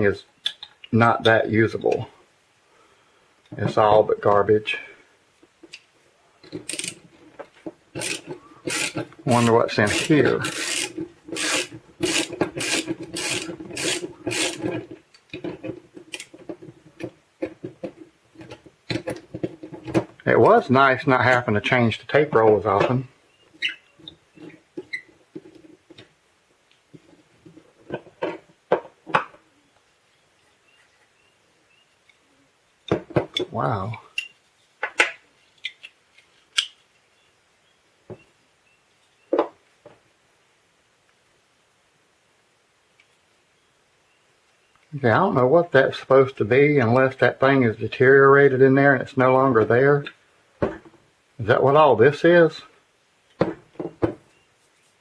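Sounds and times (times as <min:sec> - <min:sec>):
tape gun rasping strokes: 0:08.0 - 0:14.7
plastic parts clicking and knocking: 0:10.0 - 0:20.6.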